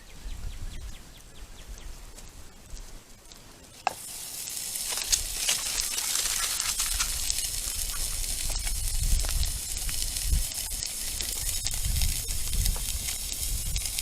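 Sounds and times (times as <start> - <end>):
campfire pops and crackles: 2.2 - 14.0
sausage sizzling in a skillet: 3.7 - 14.0.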